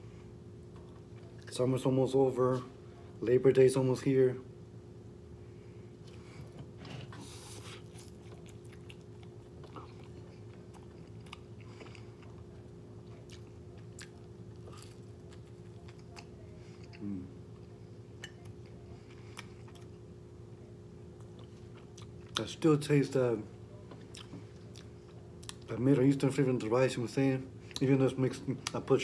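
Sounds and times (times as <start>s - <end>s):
chewing and biting: 7.5s - 17.1s.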